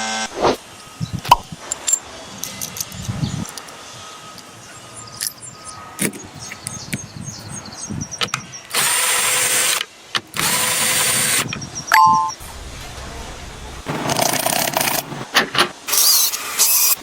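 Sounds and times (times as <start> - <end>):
power tool bursts: 8.7 - 11.5, 15.9 - 17.0.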